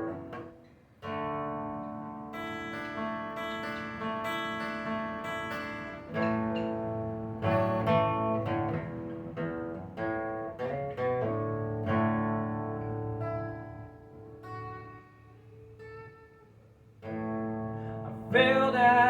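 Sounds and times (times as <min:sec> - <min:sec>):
acoustic guitar: 0:00.0 - 0:19.0.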